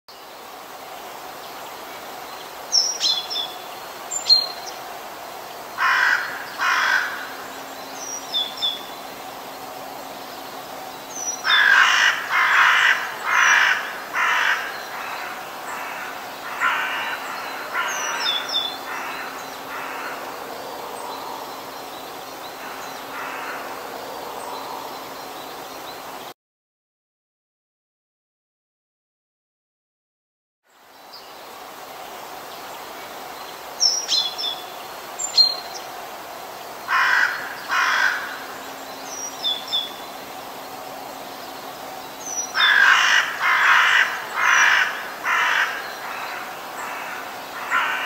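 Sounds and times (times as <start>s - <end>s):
steady hiss: 0.1s - 26.3s, 30.7s - 48.0s
harsh caw-like bird calls: 5.7s - 7.7s, 11.2s - 21.4s, 22.5s - 23.9s, 36.8s - 39.9s, 42.3s - 48.0s.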